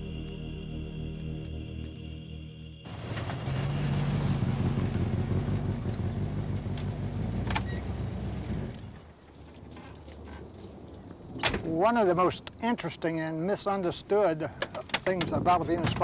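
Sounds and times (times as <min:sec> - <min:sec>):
car engine running at low speed: 0:02.8 - 0:09.0.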